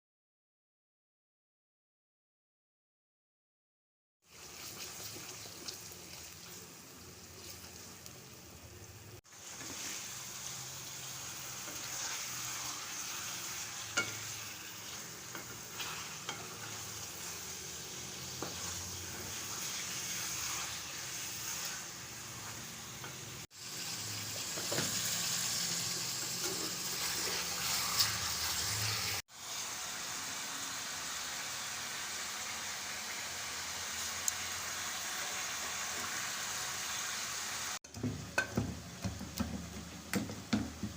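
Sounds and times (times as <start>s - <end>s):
food sizzling in hot oil: 4.2s - 40.9s
spoon scraping against pan: 11.6s - 17.6s.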